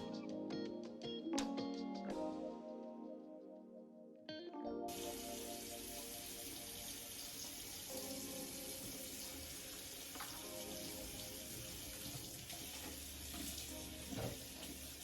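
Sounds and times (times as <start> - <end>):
faint background music: 0.0 - 15.0
tap water running into sink: 4.9 - 15.0.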